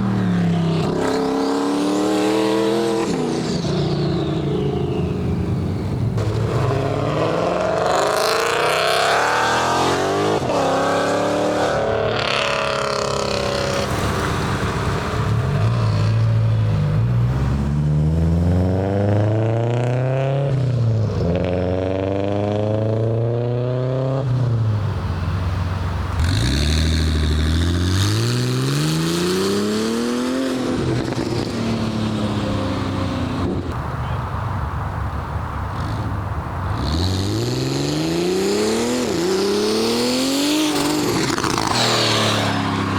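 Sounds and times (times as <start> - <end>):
car engines accelerating and revving: 0.0 - 42.9.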